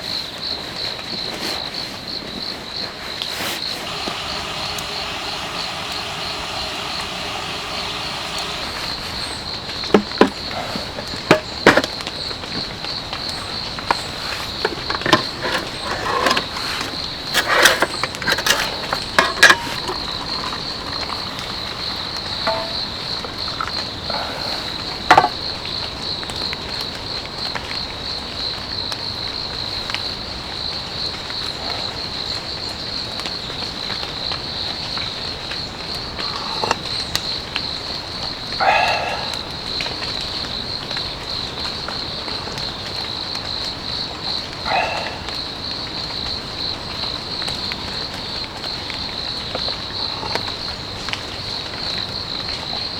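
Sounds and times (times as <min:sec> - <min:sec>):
crickets chirping: 0:00.0 - 0:52.9
sharp clicks and knocks: 0:13.8 - 0:23.0, 0:25.1 - 0:25.4.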